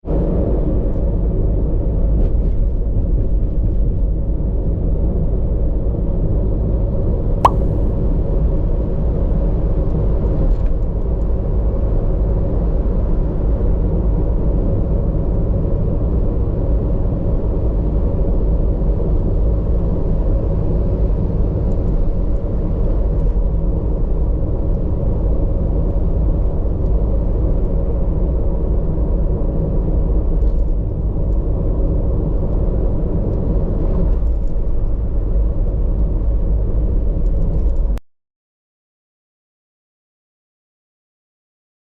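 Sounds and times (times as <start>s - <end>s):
sharp click: 7.4s - 7.9s.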